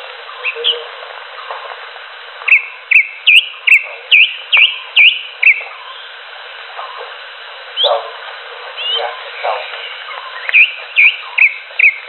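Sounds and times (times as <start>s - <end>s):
bird whistling sharp notes: 2.5s - 5.6s, 10.3s - 12.0s.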